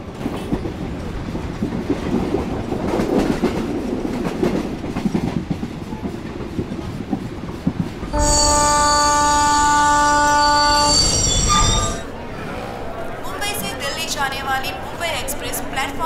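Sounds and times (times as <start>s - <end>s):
train rumbling: 0.0s - 14.1s.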